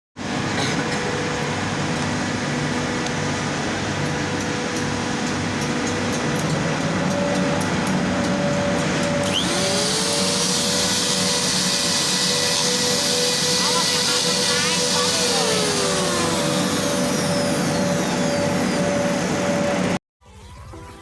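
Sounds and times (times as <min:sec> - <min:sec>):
router motor whirring whine: 0:09.1 - 0:20.0.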